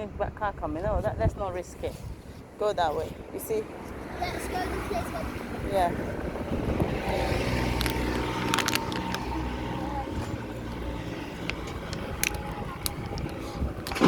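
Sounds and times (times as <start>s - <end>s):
vehicle engine rumbling passing: 2.8s - 14.0s.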